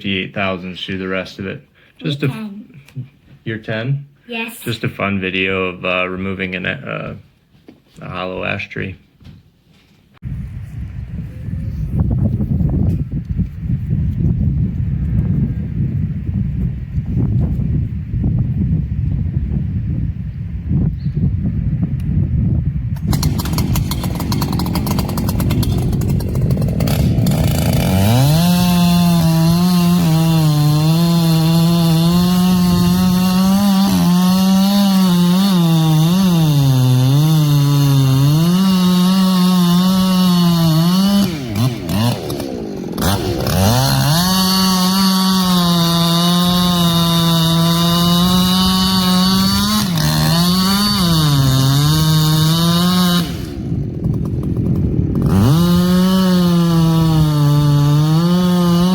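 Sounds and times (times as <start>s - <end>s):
chainsaw cutting at full throttle: 23.0s - 58.9s.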